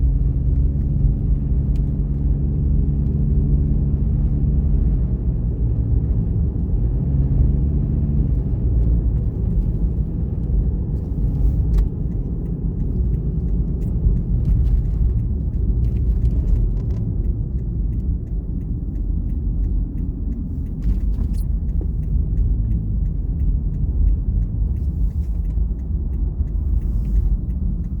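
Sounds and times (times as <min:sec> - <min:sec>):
car engine and road noise: 0:00.0 - 0:28.0
faint ticks: 0:08.3 - 0:28.0.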